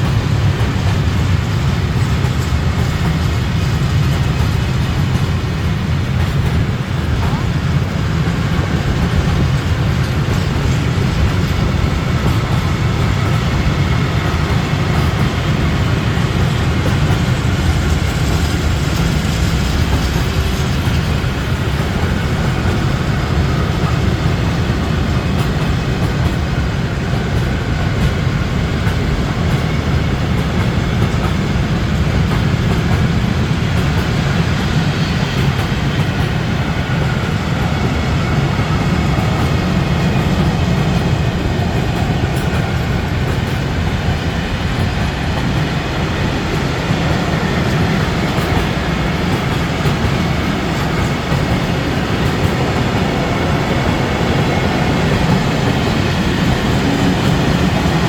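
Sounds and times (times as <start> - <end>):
train rumbling on rails: 0.0 - 58.0.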